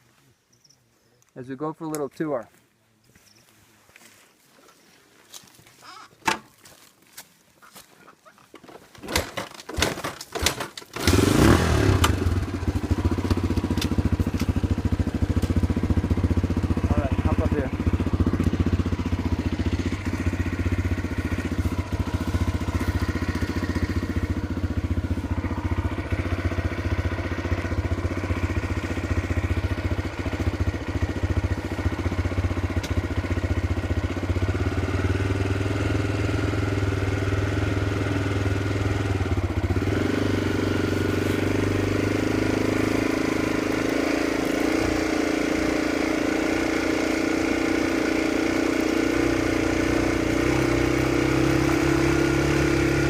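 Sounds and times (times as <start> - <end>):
small motorcycle engine running: 10.9 - 53.0.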